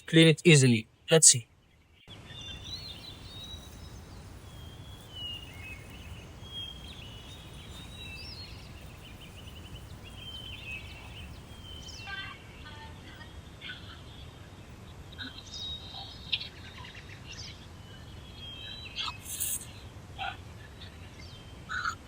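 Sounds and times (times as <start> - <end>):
small birds chirping: 0.0 - 19.9
steady low rumble: 2.6 - 12.0.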